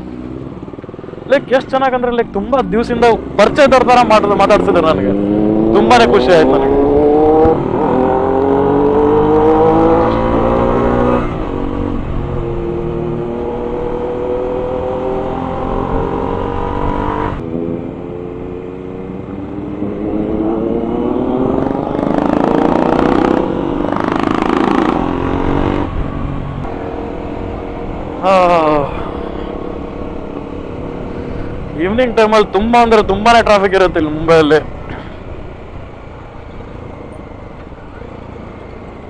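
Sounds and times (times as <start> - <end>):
motorcycle engine revving through gears: 2.7 - 28.4.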